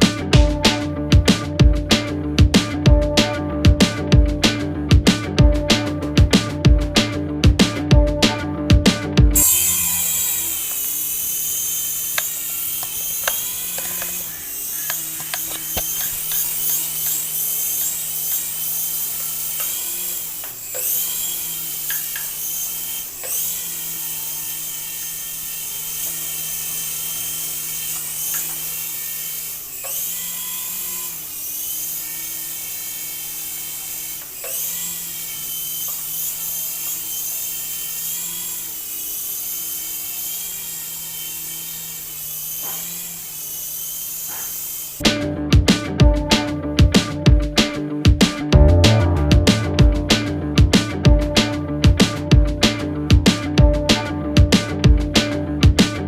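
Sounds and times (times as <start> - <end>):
toy electric motors whining: 9.4 - 45.0.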